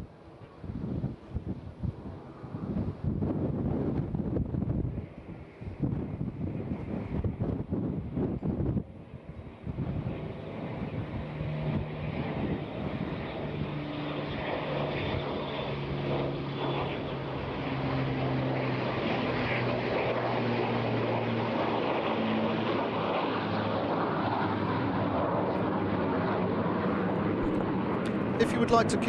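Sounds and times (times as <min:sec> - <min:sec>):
piston aircraft engines droning: 0:00.0 - 0:29.0
rushing wash: 0:10.1 - 0:29.0.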